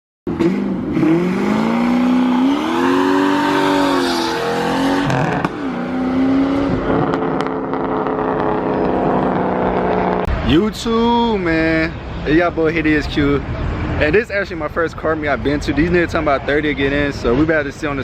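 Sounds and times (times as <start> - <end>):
car engine revving: 0.3 - 10.4.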